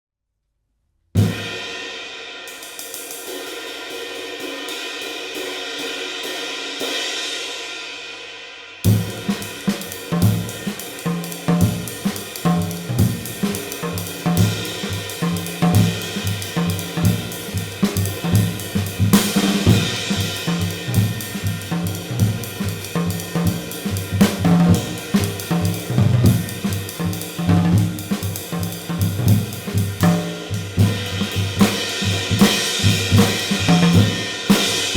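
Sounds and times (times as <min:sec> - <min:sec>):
bass drum: 0:08.9 - 0:34.9
snare drum: 0:08.9 - 0:34.9.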